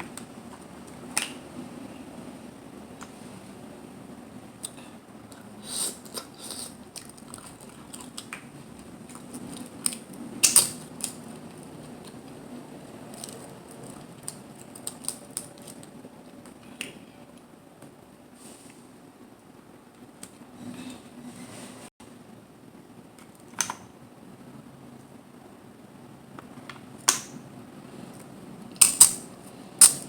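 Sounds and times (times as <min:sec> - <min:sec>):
chewing: 0:06.1 - 0:08.3
shells clicking and cracking: 0:09.1 - 0:11.4, 0:28.7 - 0:30.0.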